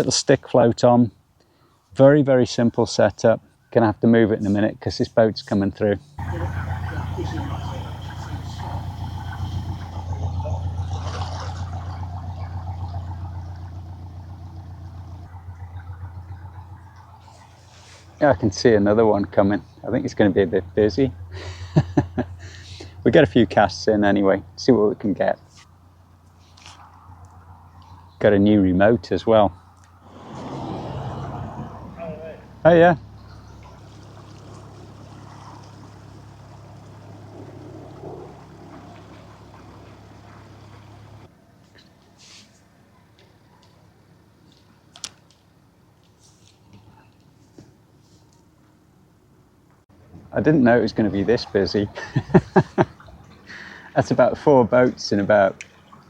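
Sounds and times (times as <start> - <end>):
boat engine chugging: 5.4 - 26.2, 27.6 - 41.3, 50.2 - 56.0.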